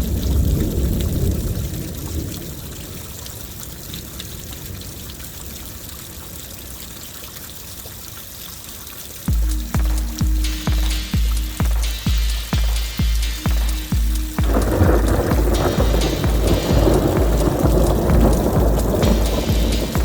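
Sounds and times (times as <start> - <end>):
heavy rain pouring: 0.0 - 20.0
loud regular low thumps: 9.3 - 20.0
low thunder rumble: 14.4 - 20.0.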